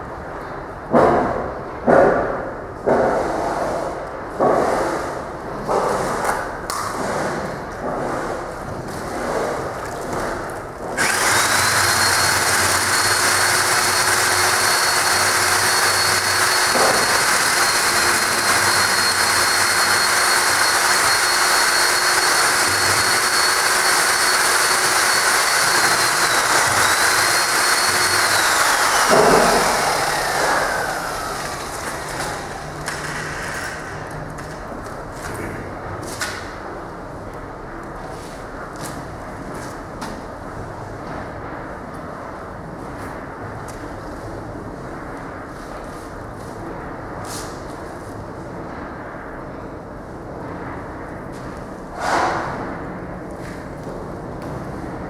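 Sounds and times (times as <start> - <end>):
electric motor whine: 11.0 - 33.1.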